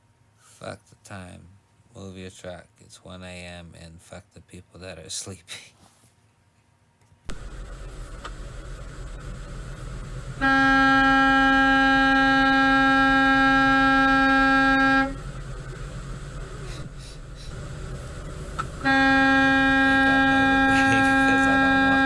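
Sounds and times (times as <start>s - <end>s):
low steady rumble: 7.2s - 22.0s
truck air horn blast: 10.4s - 15.2s, 18.7s - 22.0s.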